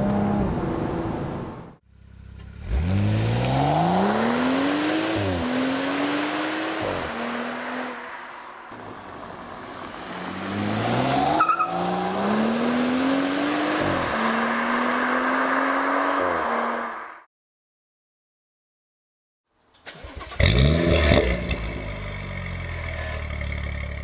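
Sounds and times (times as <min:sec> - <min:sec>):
car engine accelerating through gears: 0:02.3 - 0:08.0, 0:08.8 - 0:17.1.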